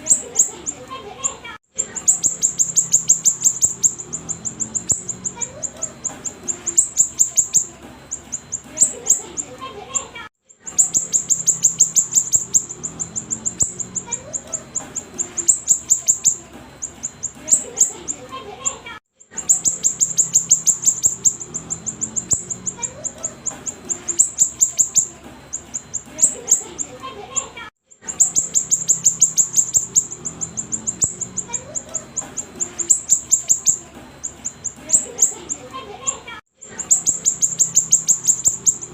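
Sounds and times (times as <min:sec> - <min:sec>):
songbird singing high chirps: 0:01.8 - 0:09.5, 0:10.7 - 0:18.2, 0:19.4 - 0:26.9, 0:28.0 - 0:35.7, 0:36.7 - 0:38.9.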